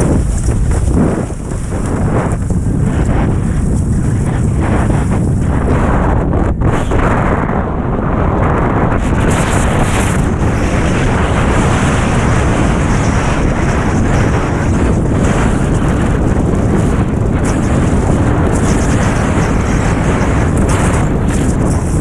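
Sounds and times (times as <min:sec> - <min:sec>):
rushing water: 0:00.0 - 0:05.5
wind blasting microphone: 0:00.0 - 0:22.0.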